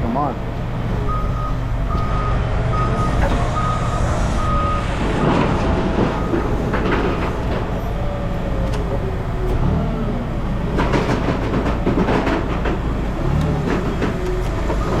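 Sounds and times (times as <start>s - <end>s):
heavy vehicle engine running: 0.0s - 15.0s
rattling clatter: 0.6s - 9.7s, 10.5s - 15.0s
reversing alarm beeping: 1.0s - 6.6s, 14.5s - 15.0s.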